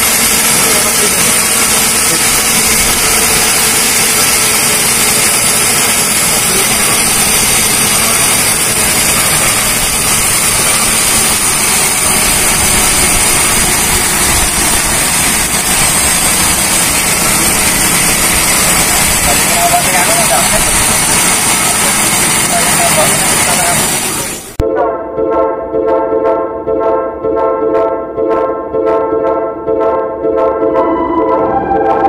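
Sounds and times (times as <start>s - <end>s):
engine running steady: 0.0s - 24.6s.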